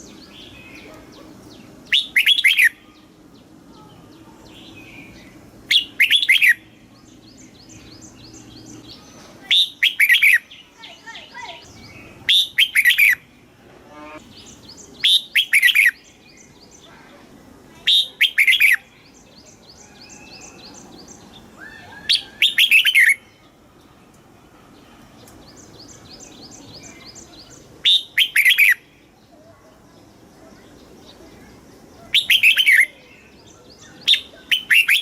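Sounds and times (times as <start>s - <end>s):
bird bubbling song phrases: 1.9s - 2.8s, 5.7s - 6.6s.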